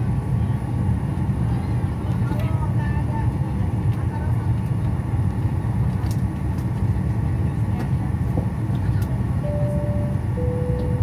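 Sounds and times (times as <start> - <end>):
airliner cabin rumble: 0.0 - 11.0
two-note alternating tone: 9.4 - 11.0.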